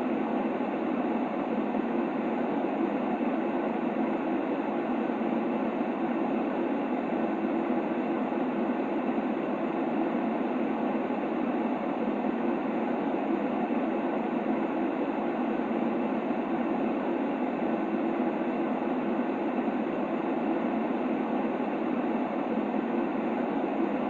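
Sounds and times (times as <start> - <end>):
steady white noise: 0.0 - 24.0.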